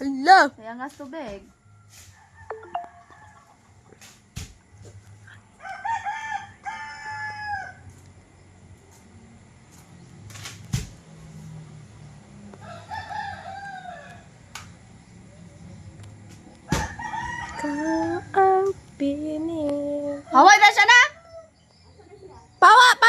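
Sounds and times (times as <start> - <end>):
rooster crowing: 1.6 - 3.6, 5.6 - 7.9, 12.5 - 14.5, 16.7 - 18.4.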